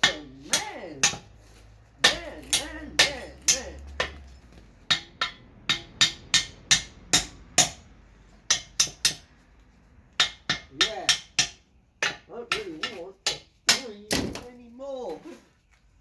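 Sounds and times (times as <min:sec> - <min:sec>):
hammer striking steel: 0:00.0 - 0:01.3, 0:02.0 - 0:04.3, 0:04.9 - 0:07.9, 0:08.5 - 0:09.3, 0:10.2 - 0:14.4.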